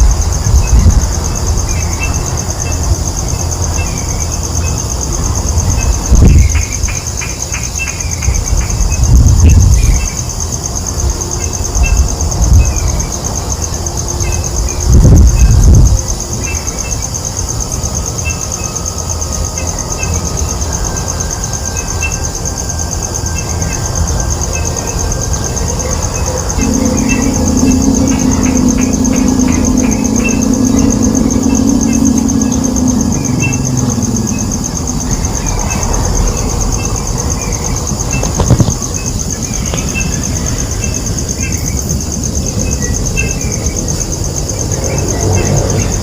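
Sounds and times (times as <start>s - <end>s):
insect drone: 0.0s - 46.0s
low rumbles: 25.3s - 40.8s.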